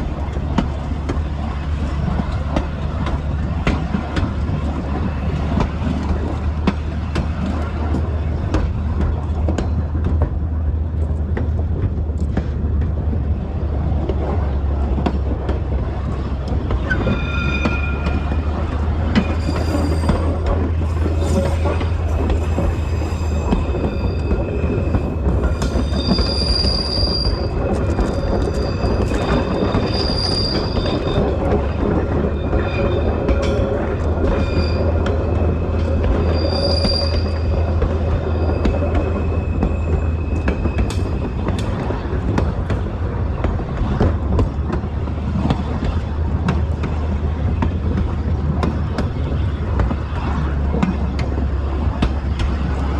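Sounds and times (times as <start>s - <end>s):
train rumbling along track: 0.0s - 52.9s
high-pitched squeal: 16.8s - 41.2s.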